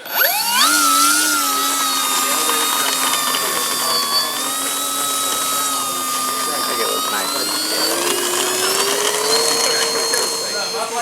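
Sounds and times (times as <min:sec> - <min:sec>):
electric motor and propeller whine: 0:00.0 - 0:11.0.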